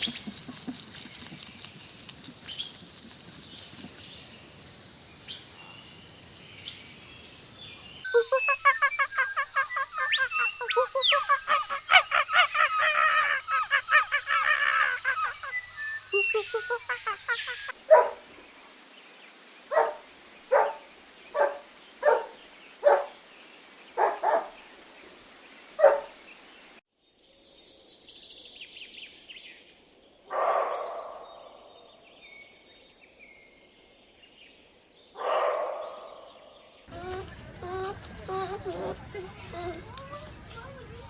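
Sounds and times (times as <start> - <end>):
faint high bird chirps: 8.0 - 12.0, 13.1 - 17.7
noisy bird calls: 8.0 - 17.8
dog barking: 17.9 - 18.2, 19.7 - 20.8, 21.4 - 23.1, 24.0 - 24.6, 25.8 - 26.1, 30.3 - 31.2, 35.2 - 36.1.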